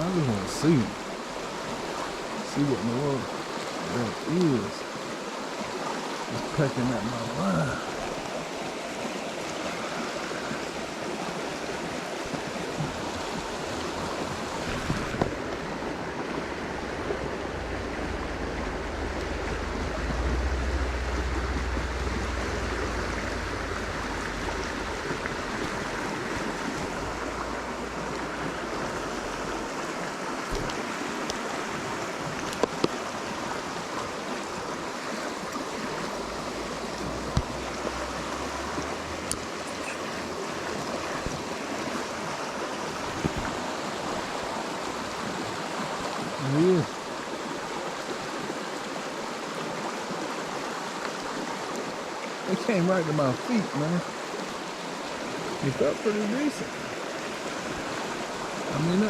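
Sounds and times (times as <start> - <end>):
creek water rushing: 0.0 - 59.0
low rumble: 16.4 - 29.7.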